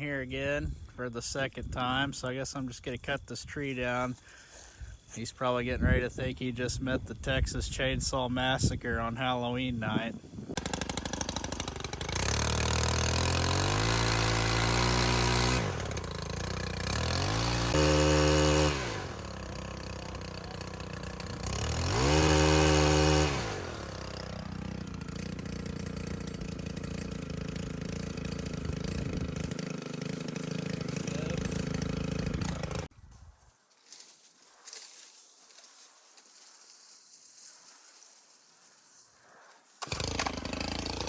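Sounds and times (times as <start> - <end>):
chainsaw engine revving and idling: 9.8 - 32.9, 39.8 - 41.0.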